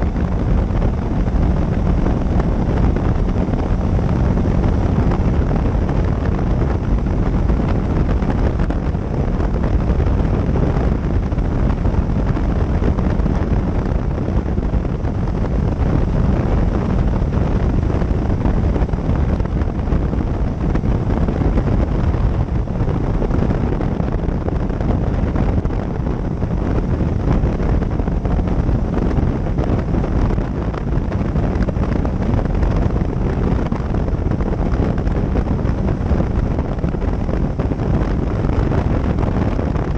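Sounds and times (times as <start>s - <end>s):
road noise: 0.0s - 39.9s
wind noise on microphone: 0.0s - 39.9s.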